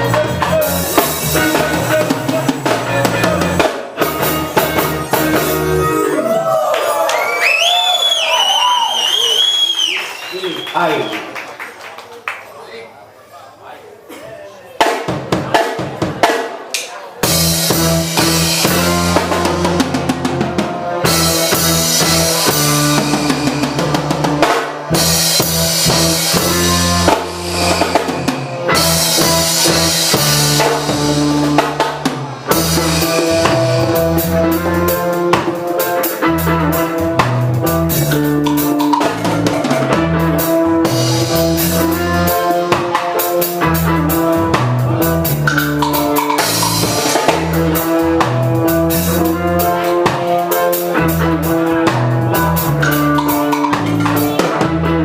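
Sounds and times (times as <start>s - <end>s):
drum kit beat: 0.0s - 6.6s, 14.8s - 55.0s
bass line: 0.0s - 9.6s, 17.2s - 55.0s
reggae band playing: 0.0s - 11.1s, 14.7s - 55.0s.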